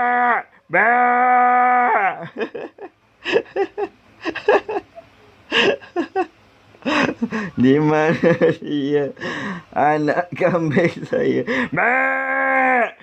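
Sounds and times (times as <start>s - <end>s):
person imitating goat bleat: 0.0s - 2.2s, 11.7s - 13.0s.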